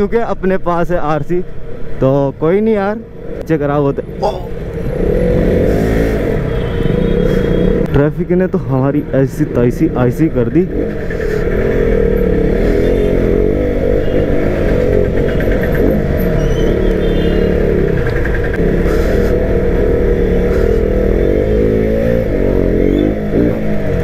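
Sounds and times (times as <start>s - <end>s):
motorcycle engine revving: 4.1s - 7.9s, 9.2s - 24.0s.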